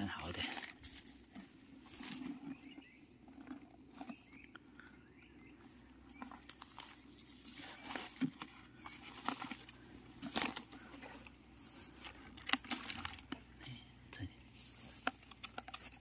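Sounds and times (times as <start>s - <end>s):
footsteps crackling in dry leaves: 0.4s - 2.4s, 6.4s - 13.4s
twigs snapping: 8.1s - 13.5s.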